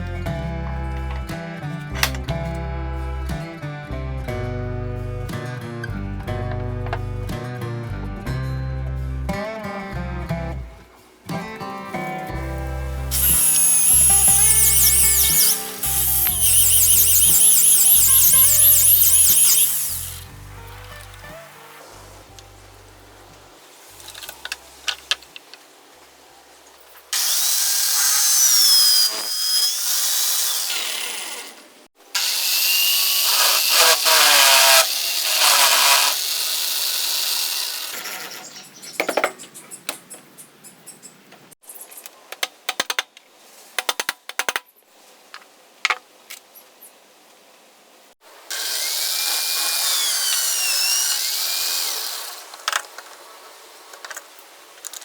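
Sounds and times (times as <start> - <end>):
power tool cutting wood: 12.4 - 21.8, 27.2 - 38.6, 48.5 - 52.7.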